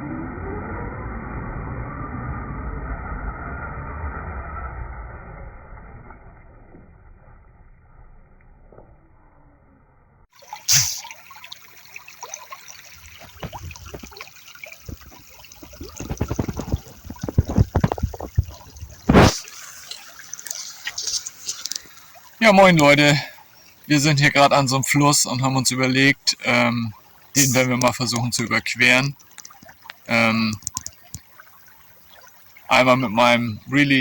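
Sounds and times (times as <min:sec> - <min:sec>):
knocks and bumps: 0:14.8 - 0:19.4
muffled sound: 0:14.8 - 0:19.6.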